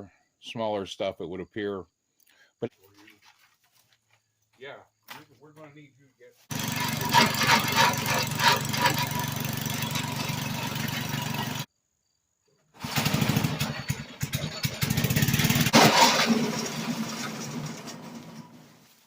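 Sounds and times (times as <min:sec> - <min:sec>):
branches knocking and rattling: 0:06.5 - 0:11.6, 0:12.8 - 0:19.0
wood chipper engine running: 0:06.5 - 0:11.7, 0:12.8 - 0:19.0.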